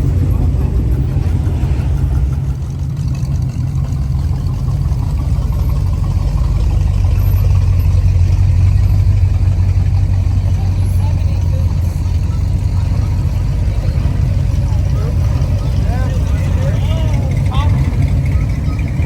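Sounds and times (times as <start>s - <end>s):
vehicle engine droning: 0.0s - 19.0s.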